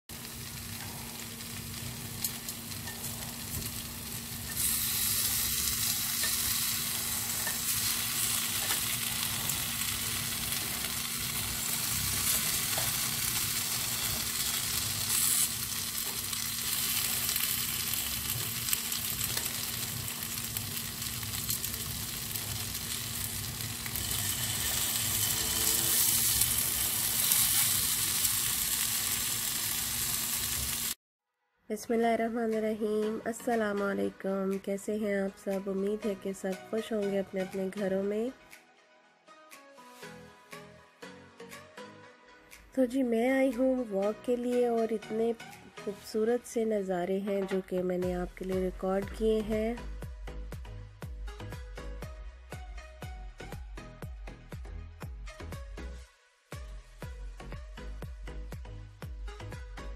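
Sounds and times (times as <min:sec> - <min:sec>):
potatoes sizzling in oil: 0:00.1 - 0:31.0.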